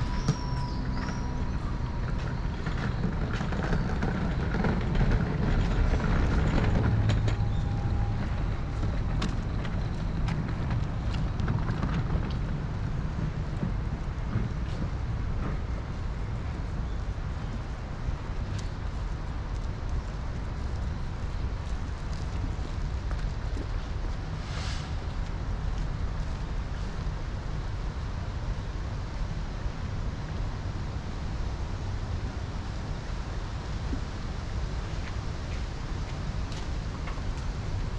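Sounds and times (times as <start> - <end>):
street traffic: 0.0 - 37.9
wind buffeting microphone: 0.0 - 37.9
light ticks: 18.4 - 20.9.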